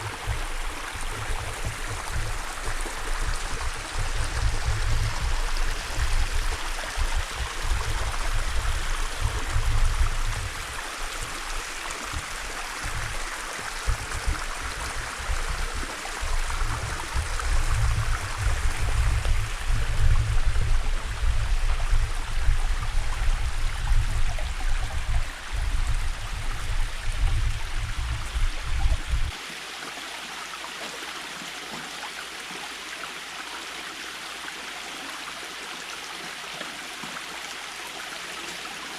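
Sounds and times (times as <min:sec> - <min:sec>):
low gusty rumble: 0:00.0 - 0:29.4
stream flowing: 0:00.0 - 0:38.9.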